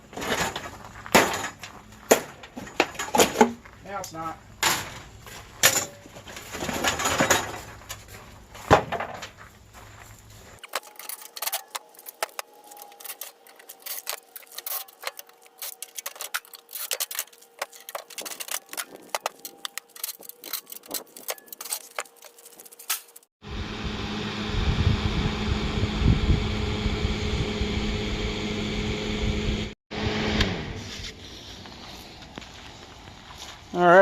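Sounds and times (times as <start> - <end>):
metal clattering and knocking: 0.1 - 3.7, 4.6 - 9.4.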